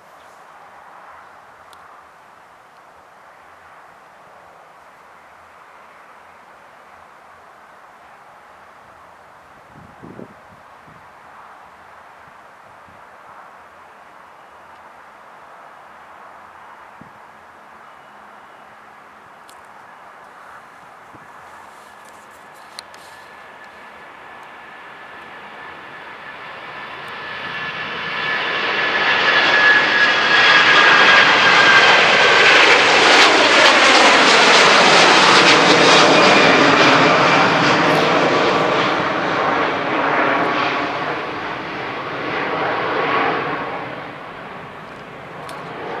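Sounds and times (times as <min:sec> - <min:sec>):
jet engine roar: 0:21.6 - 0:46.0
high jet whine: 0:21.9 - 0:46.0.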